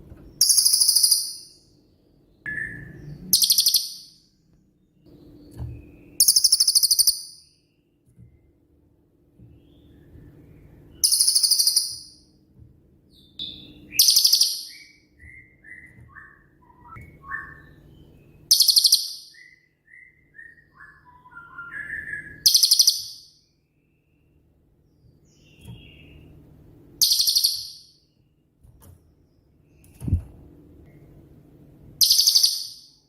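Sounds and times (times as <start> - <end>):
faint low hum: 0.0 - 33.0
bird whistled notes: 13.4 - 17.8.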